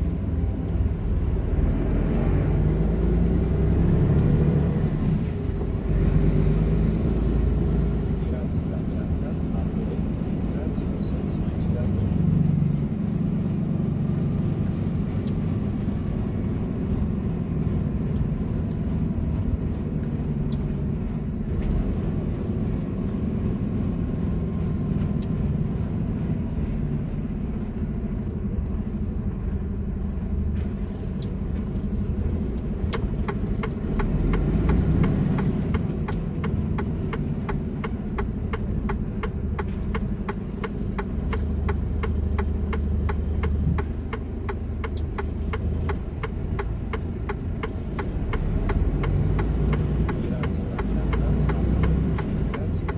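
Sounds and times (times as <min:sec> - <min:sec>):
truck engine and tyres rumbling: 0:00.0 - 0:52.9
even ticking: 0:31.2 - 0:52.9.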